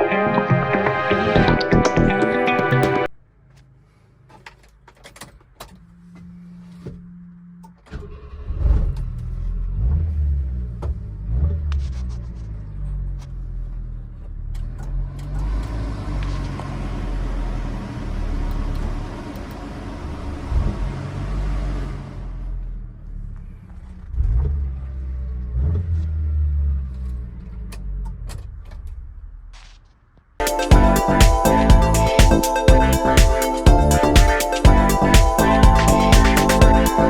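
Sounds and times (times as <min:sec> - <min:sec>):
small truck engine revving: 0:08.0 - 0:12.2, 0:14.5 - 0:23.2.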